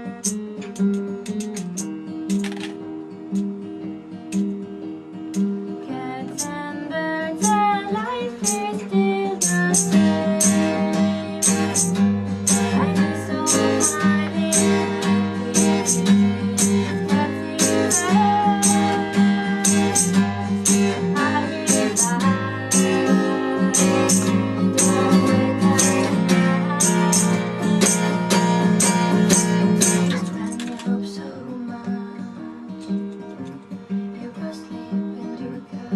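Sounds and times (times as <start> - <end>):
strummed acoustic guitar: 0.0 - 35.9
percussion hits: 0.2 - 2.8, 9.4 - 30.9
person singing: 5.9 - 33.1, 34.1 - 35.9.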